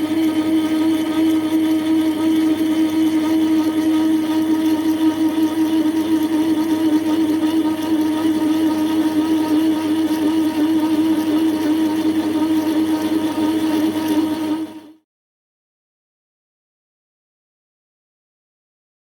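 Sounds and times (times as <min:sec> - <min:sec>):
metal lathe motor hum: 0:00.0 - 0:15.0.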